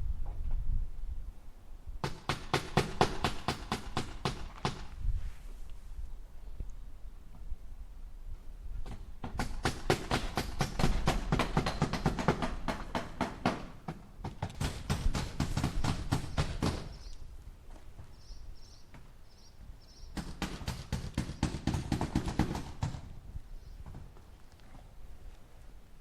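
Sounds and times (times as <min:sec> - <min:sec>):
hammer striking nails into wood: 0:02.0 - 0:04.9, 0:08.9 - 0:17.0, 0:20.2 - 0:23.1.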